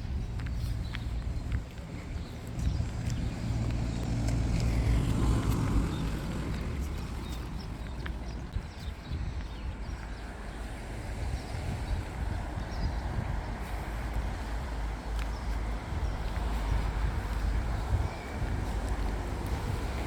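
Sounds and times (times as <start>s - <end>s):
car driving past: 3.0s - 7.6s.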